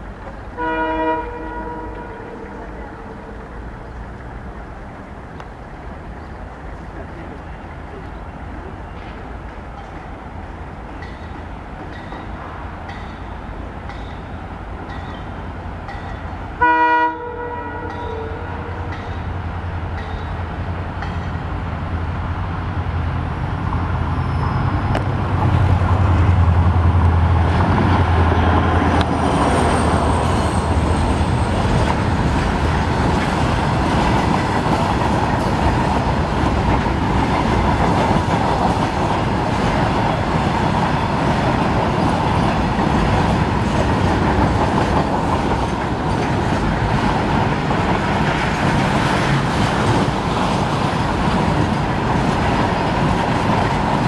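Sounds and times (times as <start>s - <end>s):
diesel locomotive engine drone: 0.0s - 54.0s
train horn blast: 0.6s - 3.4s, 16.6s - 19.0s.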